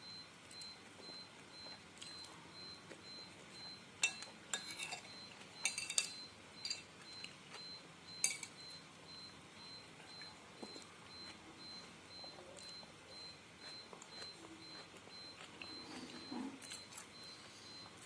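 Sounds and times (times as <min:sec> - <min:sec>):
spoon and fork clinking bowl: 0:04.0 - 0:06.9, 0:08.2 - 0:08.6.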